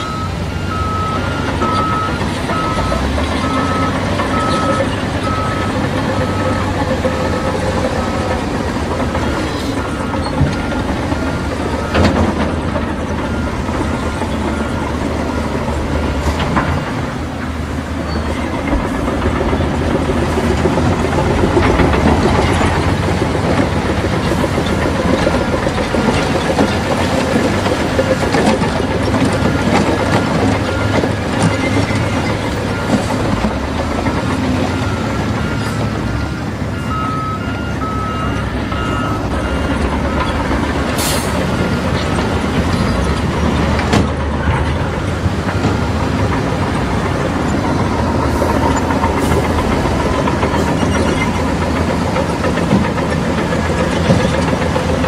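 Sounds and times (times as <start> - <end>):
diesel engine running: 0.0 - 55.0
reversing alarm beeping: 0.0 - 55.0
steel tracks clanking: 0.0 - 55.0.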